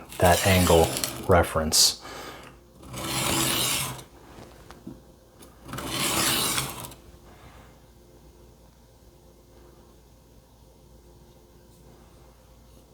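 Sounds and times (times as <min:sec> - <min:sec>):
knife grinding on whetstone: 0:00.0 - 0:01.5, 0:02.8 - 0:04.1, 0:05.6 - 0:07.0.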